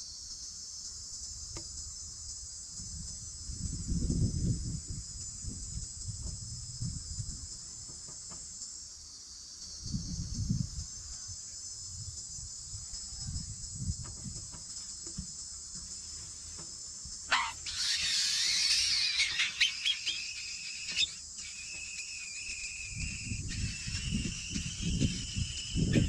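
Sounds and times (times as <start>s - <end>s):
insects chirring: 0.0s - 26.0s
nestlings begging calls: 17.3s - 26.0s.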